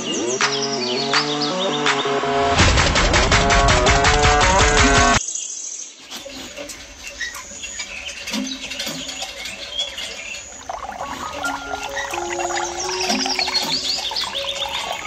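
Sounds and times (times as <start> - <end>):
music: 0.0 - 5.2, 11.2 - 15.0
bird chirps: 5.3 - 15.0.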